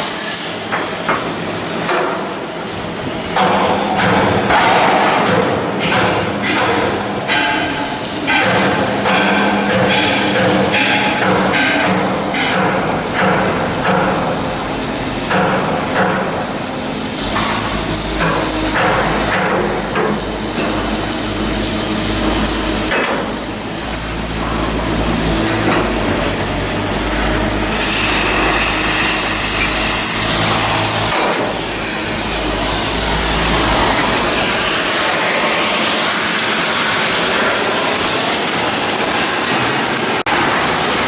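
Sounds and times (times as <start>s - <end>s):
machine drone: 0.0s - 41.0s
hammer strikes: 3.3s - 23.4s.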